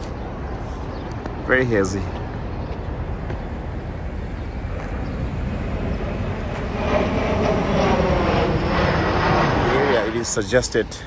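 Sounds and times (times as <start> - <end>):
traffic rumble: 0.0 - 11.0
vehicle passing: 3.5 - 11.0.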